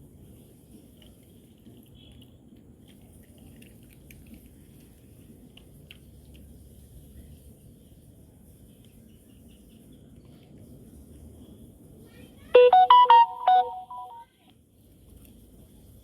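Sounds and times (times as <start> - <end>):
faint background noise: 0.0 - 16.0
electronic beeping jingle: 12.6 - 14.2.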